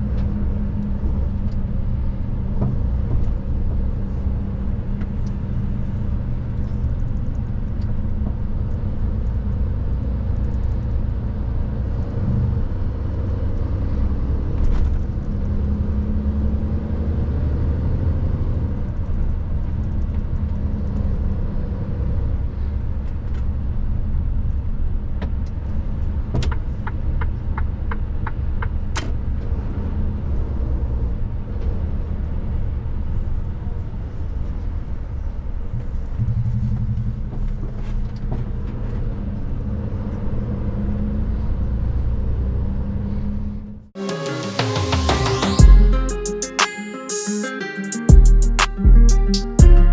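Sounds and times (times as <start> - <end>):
road rumble: 0.0 - 43.8
truck engine drone: 48.1 - 49.9.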